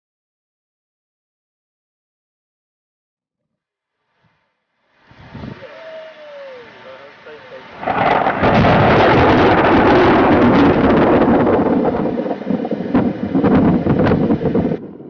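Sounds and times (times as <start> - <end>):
wind buffeting microphone: 5.1 - 5.7, 7.8 - 15.0.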